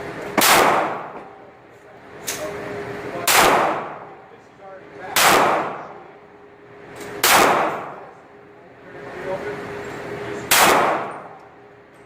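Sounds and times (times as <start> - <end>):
pistol shots echoing: 0.4 - 1.3, 3.2 - 4.2, 5.1 - 6.1, 7.2 - 8.1, 10.5 - 11.4.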